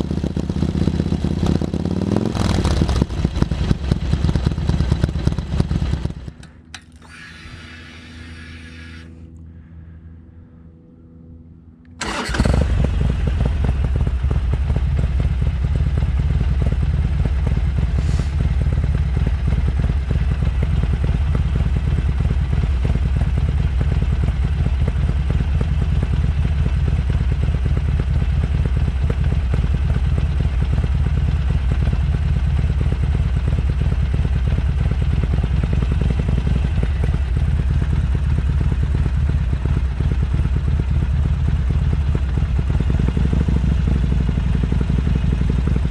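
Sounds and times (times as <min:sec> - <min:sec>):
motorcycle engine idling: 0:00.0 - 0:07.1, 0:12.0 - 0:45.9.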